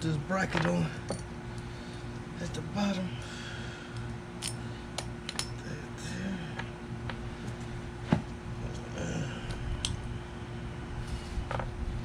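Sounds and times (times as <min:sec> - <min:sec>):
small metal parts clinking: 0:04.0 - 0:05.6.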